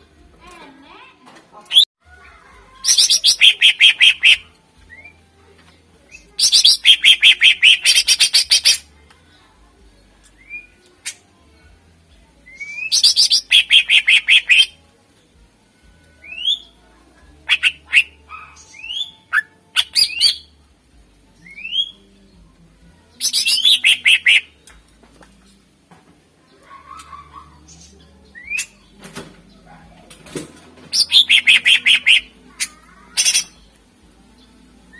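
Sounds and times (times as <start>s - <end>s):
bird singing varied song: 2.8s - 8.9s, 10.0s - 11.3s, 12.4s - 14.8s, 16.0s - 16.8s, 17.4s - 20.6s, 21.2s - 25.7s, 26.4s - 34.9s.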